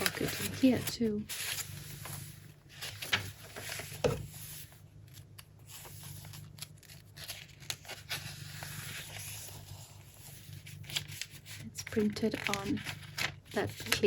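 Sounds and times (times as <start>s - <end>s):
paper rustling and crinkling: 0.0s - 14.0s
sharp paper crackles: 0.0s - 14.0s.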